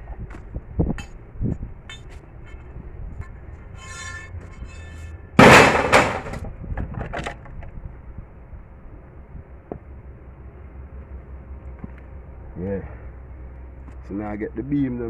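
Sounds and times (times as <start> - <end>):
short high squeal: 3.6 - 5.3
building materials knocking: 5.4 - 6.5
loud sudden clatter: 5.4 - 6.5.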